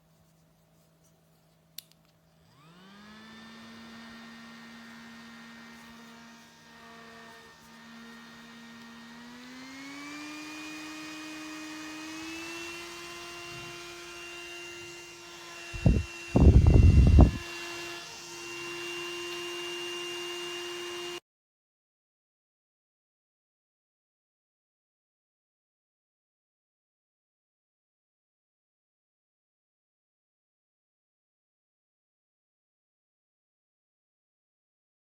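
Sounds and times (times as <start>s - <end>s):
mini fan motor whining: 2.4s - 21.2s
loud rush of air: 15.8s - 17.4s.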